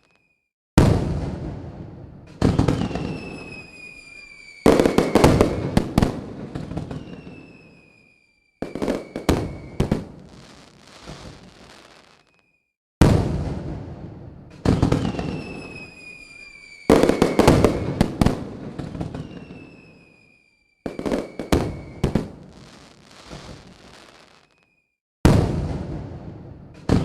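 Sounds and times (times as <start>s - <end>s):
fireworks bangs: 0.0s - 27.0s
whistling tones falling in pitch: 2.8s - 5.6s, 6.9s - 9.8s, 15.1s - 17.9s, 19.1s - 22.1s.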